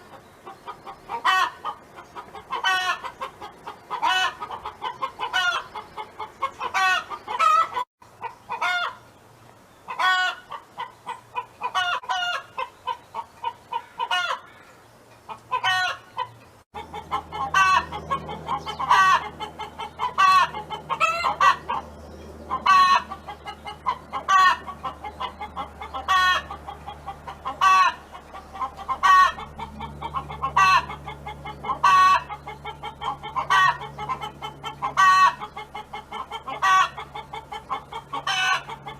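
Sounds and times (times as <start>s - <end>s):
hen clucking: 0.0s - 9.1s, 9.9s - 14.6s, 15.2s - 38.9s.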